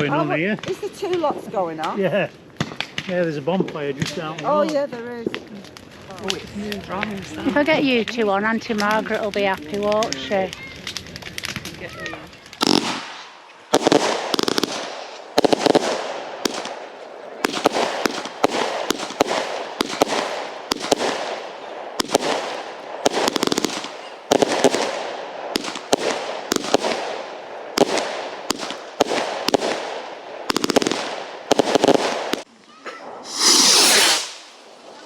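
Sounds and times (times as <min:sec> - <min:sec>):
fireworks banging and crackling: 0:00.0 - 0:35.0
rapid-fire firework cracks: 0:00.6 - 0:07.2, 0:07.9 - 0:32.5, 0:33.2 - 0:35.0.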